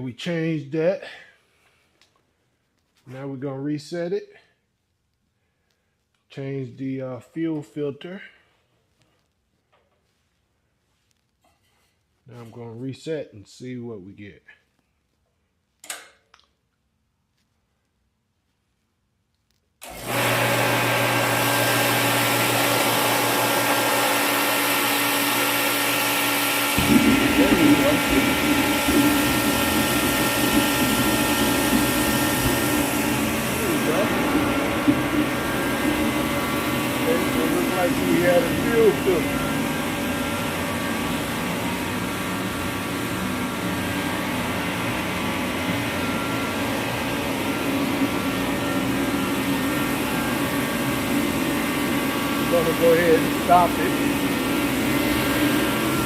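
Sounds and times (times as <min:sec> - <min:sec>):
heater fan and burner running: 0:19.8 - 0:56.0
faint hum tones: 0:26.8 - 0:56.0.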